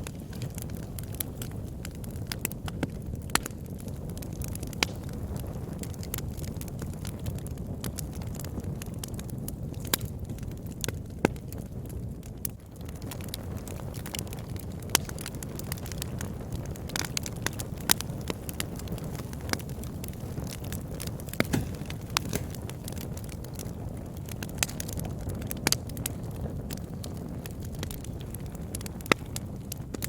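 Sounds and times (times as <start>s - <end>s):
fire crackling and popping: 0.0s - 30.0s
fire rumbling in a fireplace: 0.0s - 30.0s.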